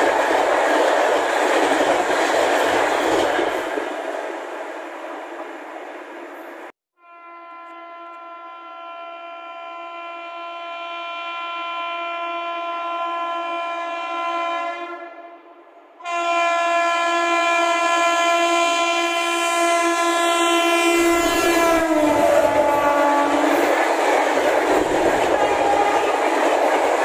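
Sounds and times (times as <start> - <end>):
train rushing by: 0.0 - 6.7, 19.9 - 27.0
locomotive air horn blasts: 7.0 - 23.6.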